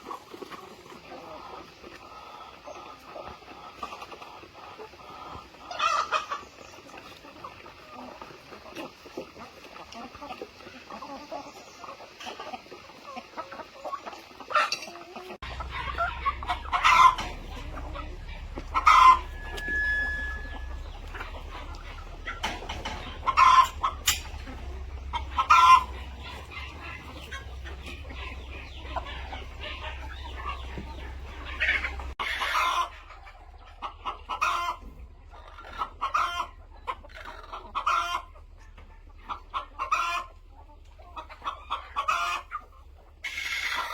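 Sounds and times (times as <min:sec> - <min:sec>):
chickens clucking and squawking: 0:00.0 - 0:43.9
low steady rumble: 0:15.4 - 0:32.2.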